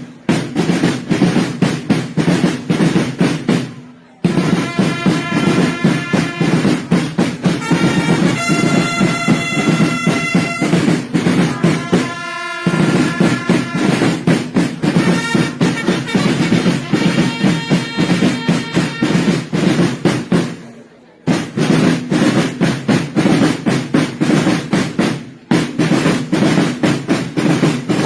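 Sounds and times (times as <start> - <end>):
fast drum roll: 0.1 - 20.6, 21.3 - 28.0
held trumpet notes: 4.3 - 19.7.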